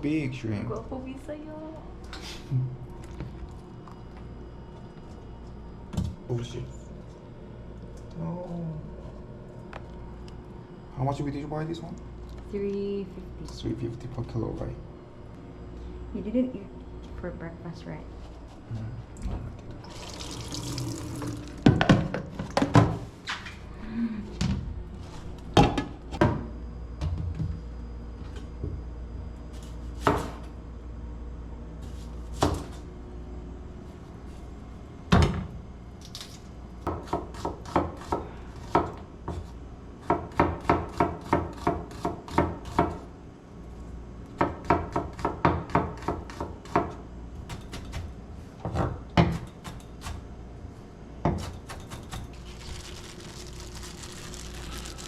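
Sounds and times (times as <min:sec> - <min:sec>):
knife chopping on cutting board: 0:32.4 - 0:32.8, 0:36.8 - 0:43.0, 0:44.4 - 0:50.2.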